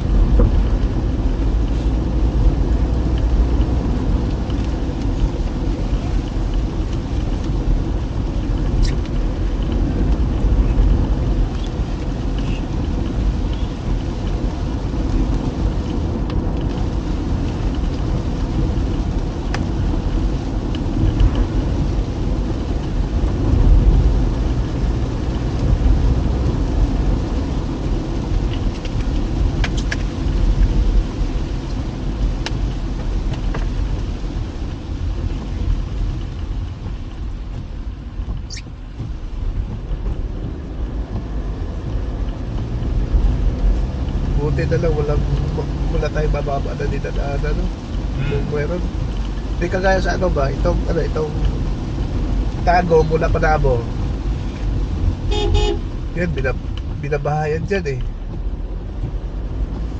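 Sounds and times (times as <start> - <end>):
car engine and tyres on wet road: 0.0 - 59.9
faint light ticks: 1.6 - 7.6, 18.9 - 19.7, 20.7 - 21.9, 28.3 - 31.0, 31.7 - 34.2, 38.3 - 45.8.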